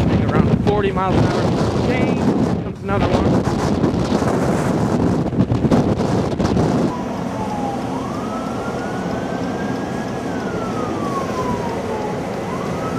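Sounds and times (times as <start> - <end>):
blizzard wind: 0.0 - 12.9
wind buffeting microphone: 0.0 - 12.9
siren wailing: 6.0 - 12.9.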